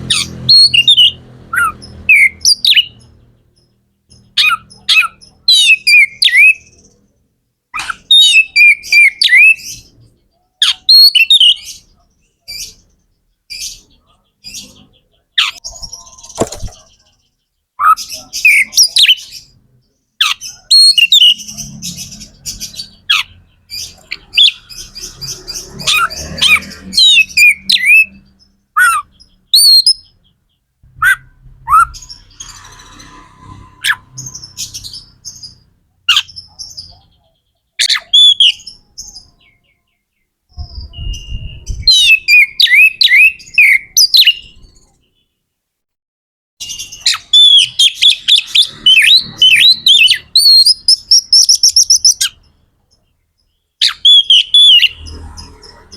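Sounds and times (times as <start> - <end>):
bird singing whistles and chirps: 4.1 - 7.0, 7.8 - 17.2, 20.2 - 30.3, 31.0 - 37.2, 37.8 - 45.0, 46.6 - 52.4, 53.8 - 55.1.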